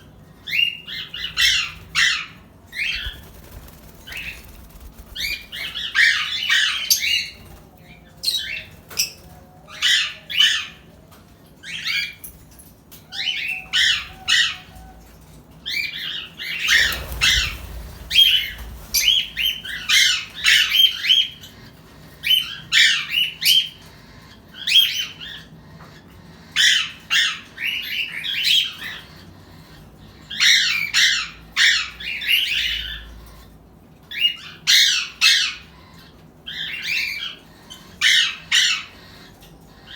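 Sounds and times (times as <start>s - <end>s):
parrots squawking: 4.0s - 7.4s.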